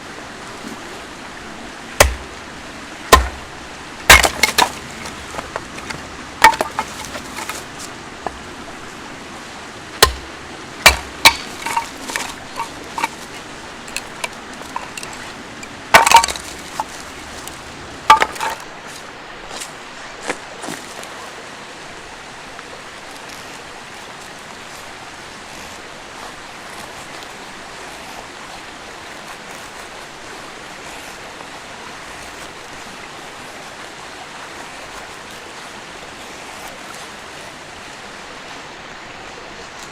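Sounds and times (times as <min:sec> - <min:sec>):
river rushing: 0:00.0 - 0:39.9
wood knocking and cracking: 0:02.0 - 0:02.3, 0:03.1 - 0:03.5, 0:04.1 - 0:08.4, 0:10.0 - 0:18.6
clinks: 0:04.1 - 0:07.6, 0:10.8 - 0:18.6.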